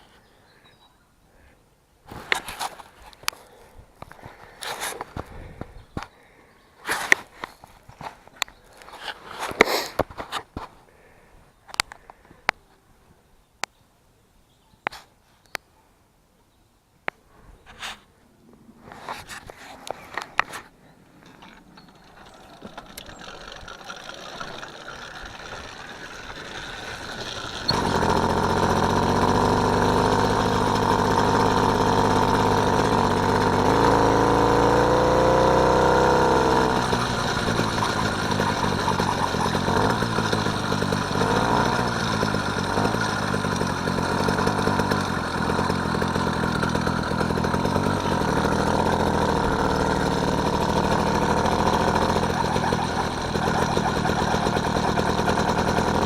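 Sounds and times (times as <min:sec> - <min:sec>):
small motorbike engine revving: 0:21.4 - 0:56.0.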